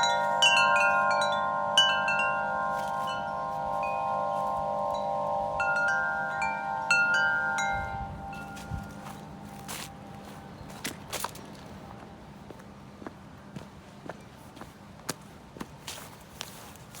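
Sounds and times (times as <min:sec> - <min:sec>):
wind chimes ringing: 0:00.0 - 0:11.6
gusty wind: 0:00.0 - 0:15.6.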